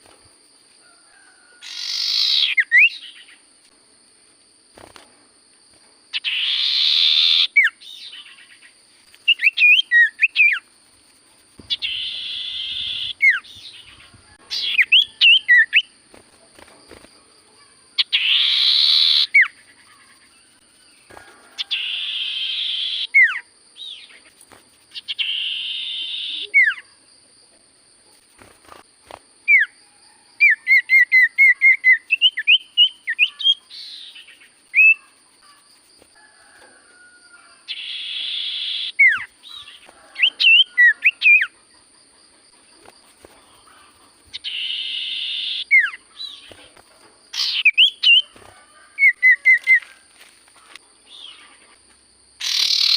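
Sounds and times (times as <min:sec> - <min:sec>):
bird whistling and chattering: 0:01.6 - 0:03.1, 0:14.5 - 0:15.9, 0:25.0 - 0:26.8, 0:47.4 - 0:48.2, 0:52.4 - 0:52.9
harsh buzzy bird rasps: 0:01.6 - 0:03.3, 0:11.6 - 0:15.9, 0:21.6 - 0:26.9, 0:42.8 - 0:49.8, 0:52.4 - 0:52.9.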